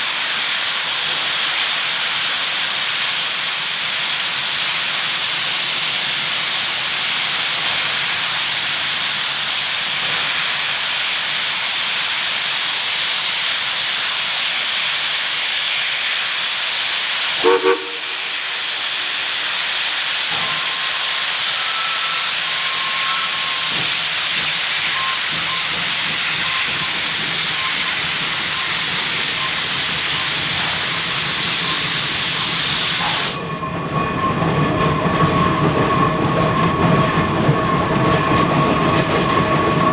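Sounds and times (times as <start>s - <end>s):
steam locomotive venting steam: 0.0s - 39.9s.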